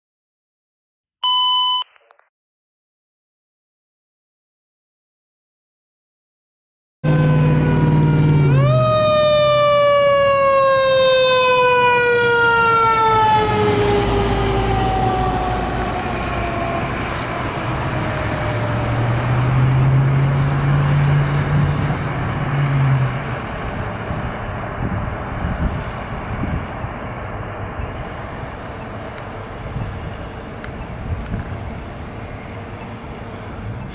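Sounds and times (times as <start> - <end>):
fire truck siren wailing: 7.0 - 33.9
truck rumble and road noise: 7.0 - 33.9.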